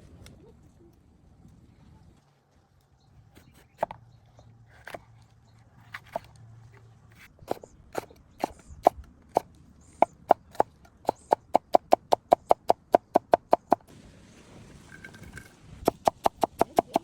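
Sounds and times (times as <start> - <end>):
fork beating eggs in bowl: 7.4 - 13.8, 15.9 - 17.0.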